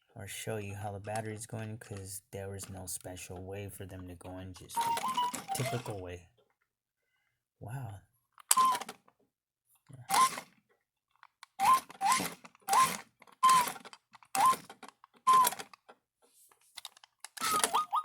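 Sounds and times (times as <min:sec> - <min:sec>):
toy electronic chirps and beeps: 0:04.8 - 0:06.0, 0:17.4 - 0:18.0.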